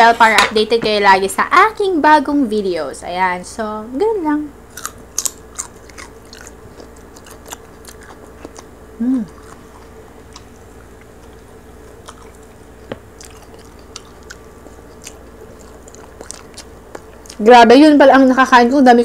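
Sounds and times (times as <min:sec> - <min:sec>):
chewing and biting meat: 0:04.7 - 0:17.4.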